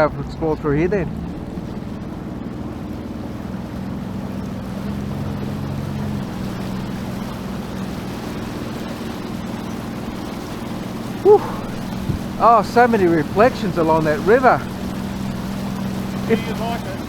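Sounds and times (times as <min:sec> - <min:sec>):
jet ski engine running: 0:00.0 - 0:17.0
water rushing: 0:00.0 - 0:17.0
wind: 0:00.0 - 0:17.0.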